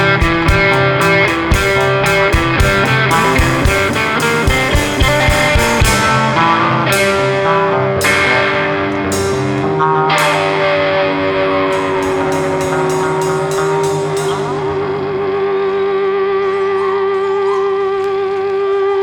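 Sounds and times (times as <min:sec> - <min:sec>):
drum hits: 0:00.0 - 0:15.3
cymbal crashes: 0:00.0 - 0:16.7
electric guitar chords: 0:00.0 - 0:19.0.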